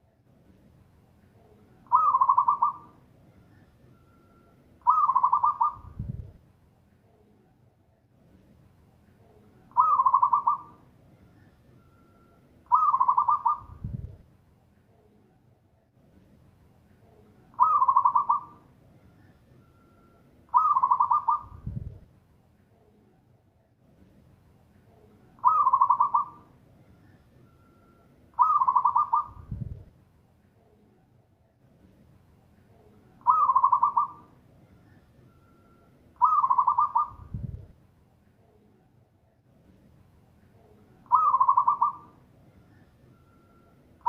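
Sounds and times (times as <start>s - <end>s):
dove cooing: 1.8s - 3.0s, 4.8s - 6.0s, 9.7s - 10.8s, 12.7s - 13.8s, 17.6s - 18.6s, 20.5s - 21.6s, 25.4s - 27.2s, 28.4s - 29.5s, 33.2s - 35.0s, 36.2s - 37.3s, 41.0s - 42.2s.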